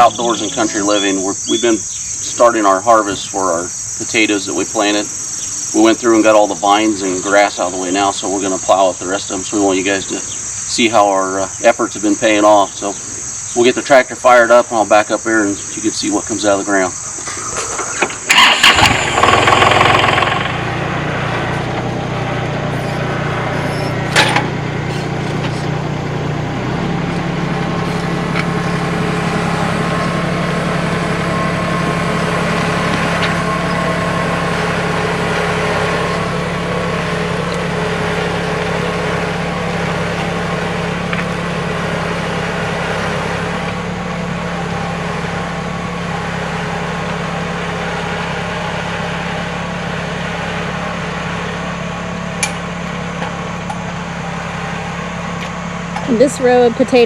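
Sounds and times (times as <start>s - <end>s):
tractor diesel engine starting and idling: 0.0s - 57.0s
sharp click: 52.4s - 52.6s.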